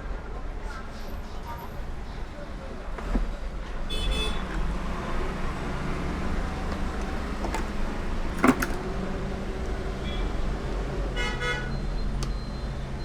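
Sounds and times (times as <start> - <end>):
road traffic rumble: 0.4 - 11.2
car horn toot: 3.9 - 4.5.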